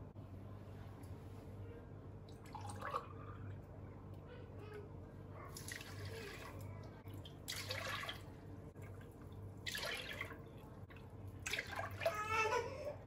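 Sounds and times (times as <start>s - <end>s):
water splashing: 7.4s - 12.2s.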